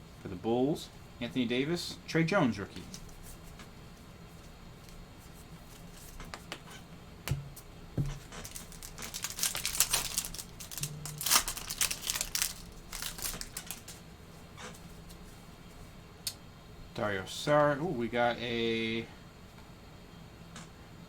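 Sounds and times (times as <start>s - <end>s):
foil wrapper tearing and crinkling: 8.2s - 14.0s.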